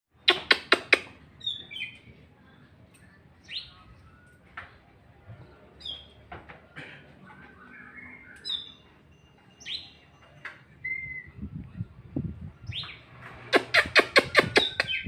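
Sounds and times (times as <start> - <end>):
magpie-robin singing: 0.2 - 2.2, 3.4 - 4.4, 5.7 - 6.2, 7.4 - 11.4, 12.5 - 15.0.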